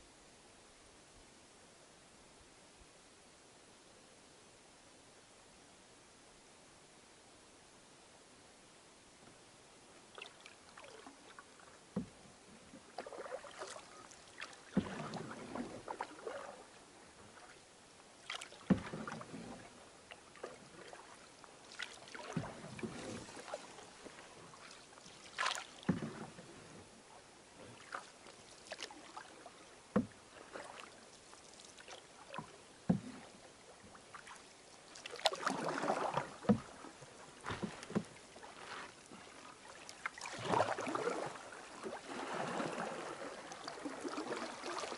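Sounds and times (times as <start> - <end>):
paddle strokes splashing: 10.0 - 44.9.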